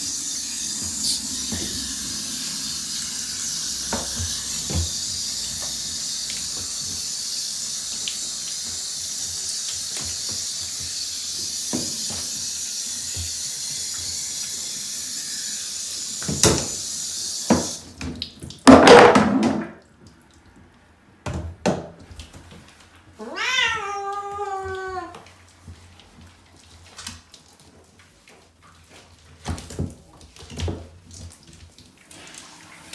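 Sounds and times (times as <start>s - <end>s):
running water hissing: 0.0s - 18.0s, 32.0s - 32.9s
cat meowing: 23.2s - 25.2s.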